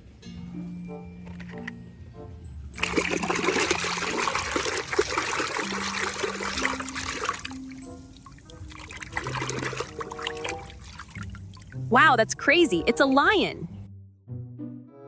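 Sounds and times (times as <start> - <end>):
background music: 0.0 - 15.0
water running and splashing: 2.8 - 11.9.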